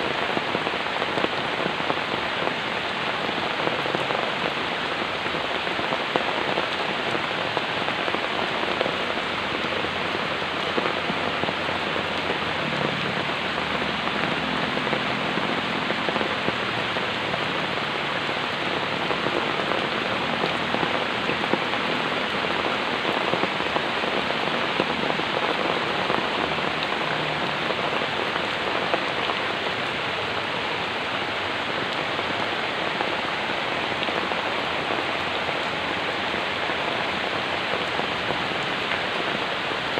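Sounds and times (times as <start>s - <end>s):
rain falling on a surface: 0.0s - 39.9s.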